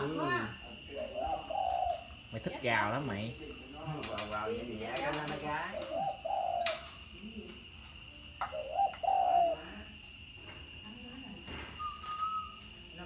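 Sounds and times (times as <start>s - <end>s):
dove cooing: 0.2s - 2.2s, 4.2s - 7.1s, 8.4s - 10.0s.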